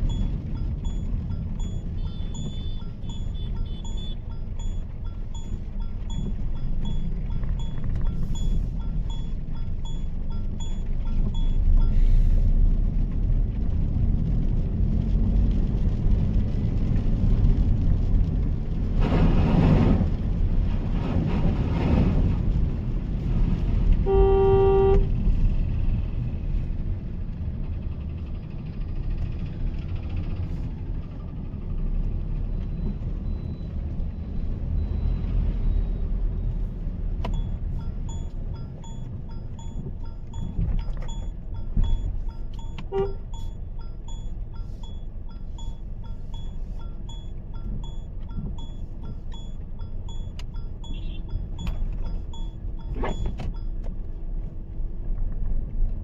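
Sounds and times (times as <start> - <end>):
turn-signal indicator ticking: 0.0 - 11.9, 37.2 - 54.0
car engine low rumble: 0.0 - 56.0
tyres on wet road: 0.0 - 56.0
car horn: 24.0 - 25.2, 42.8 - 43.3, 50.9 - 51.3.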